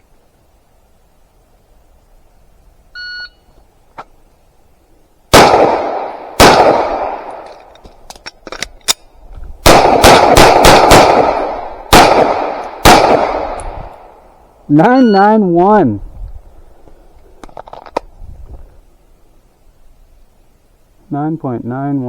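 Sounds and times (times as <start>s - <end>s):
pistol shots: 5.3s - 7.6s, 9.6s - 13.8s
shot timer beep: 14.9s - 15.3s.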